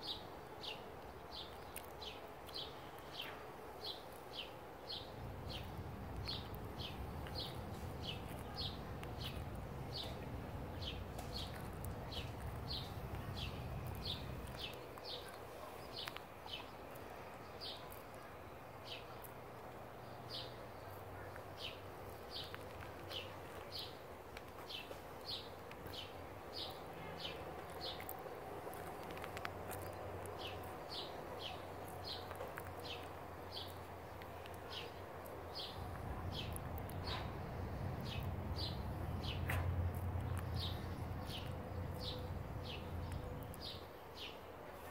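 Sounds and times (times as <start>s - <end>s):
bird chirping: 0.0s - 19.3s, 24.6s - 44.4s
low steady hum: 0.0s - 24.3s.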